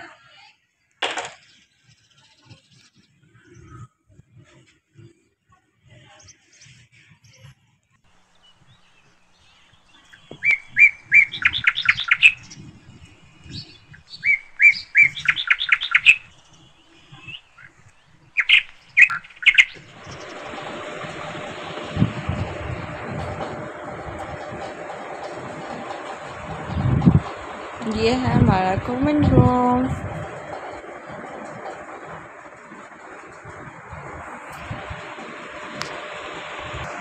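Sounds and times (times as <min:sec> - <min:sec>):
steady rushing noise: 0:08.1 - 0:37.0
small bird chirping: 0:08.2 - 0:21.6.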